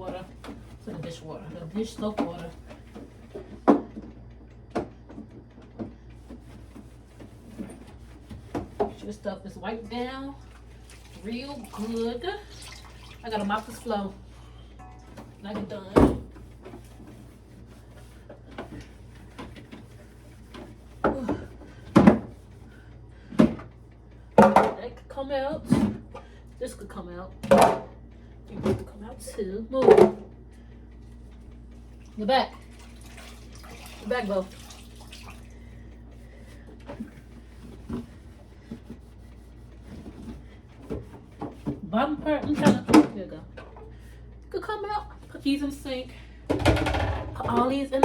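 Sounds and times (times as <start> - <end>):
steady low hum: 0.0 - 48.0
plastic refrigerator drawers clunking: 40.9 - 43.2.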